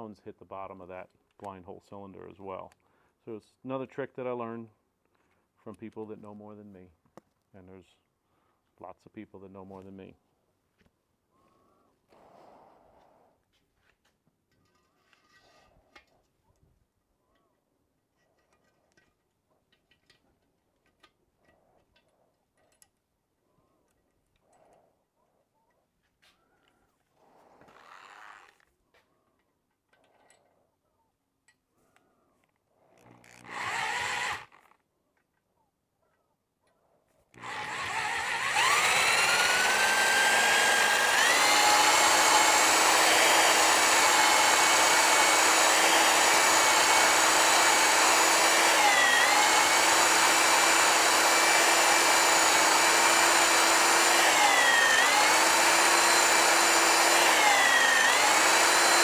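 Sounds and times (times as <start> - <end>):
power drill whining: 33.1 - 34.7, 37.3 - 59.0.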